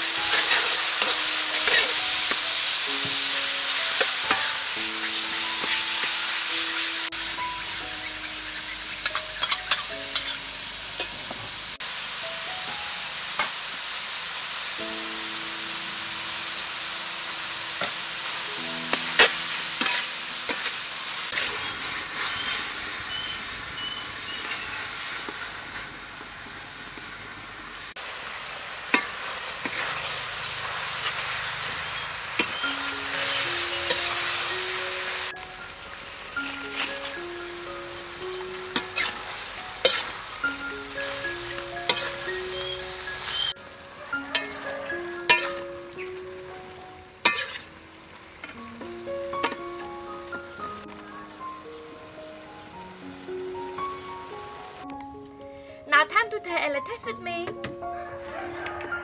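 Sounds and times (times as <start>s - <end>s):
meat sizzling in a wok: 0.0s - 54.9s
metal spatula scraping a pan: 0.2s - 2.4s, 9.0s - 11.2s, 19.0s - 22.7s, 38.3s - 39.2s, 39.8s - 40.2s, 41.9s - 43.5s, 44.3s - 45.7s, 47.2s - 47.7s.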